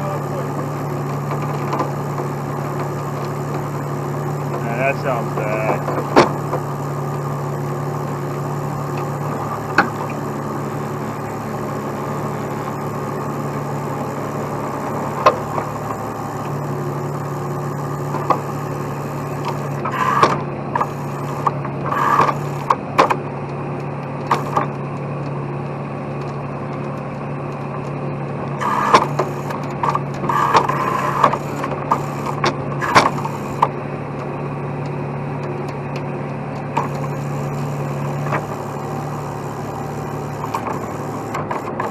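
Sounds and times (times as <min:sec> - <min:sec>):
truck engine running: 0:00.0 - 0:41.9
sharp clanks and knocks: 0:19.4 - 0:23.2.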